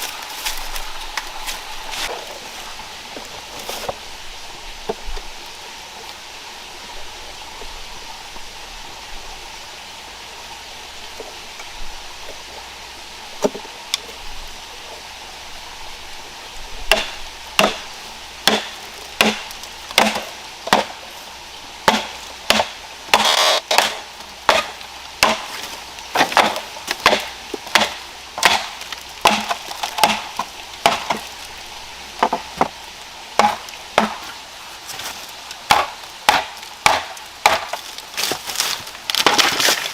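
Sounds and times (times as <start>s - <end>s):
wood chopping strikes: 16.9s - 21.0s, 21.8s - 31.3s, 33.4s - 34.4s, 35.7s - 39.9s.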